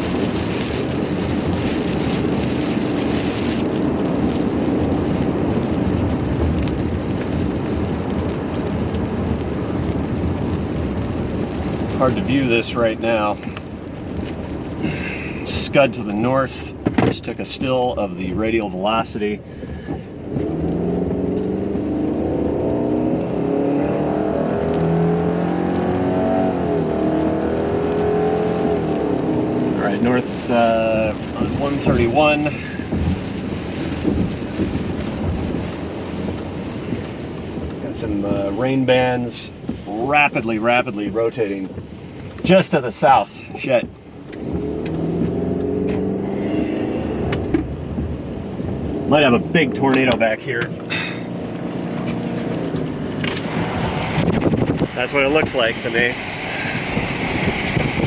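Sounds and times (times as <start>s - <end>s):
car road and engine noise: 0.0s - 58.0s.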